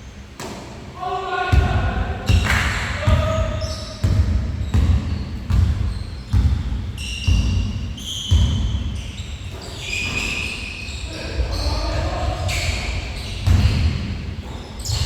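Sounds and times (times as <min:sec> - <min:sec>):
basketball bouncing on gym floor: 0:01.5 - 0:10.5, 0:12.5 - 0:15.0
short high squeaks: 0:08.9 - 0:11.8.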